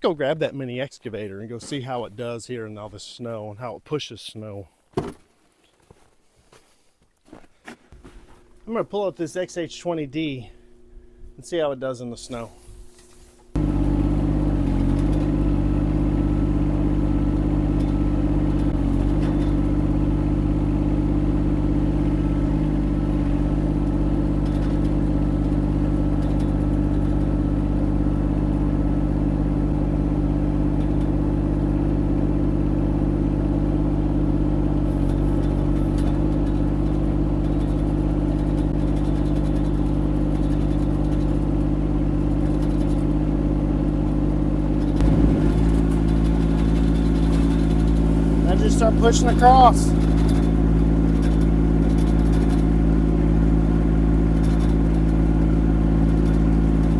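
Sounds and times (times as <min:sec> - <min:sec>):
excavator diesel engine running: 0:13.6 - 0:56.9.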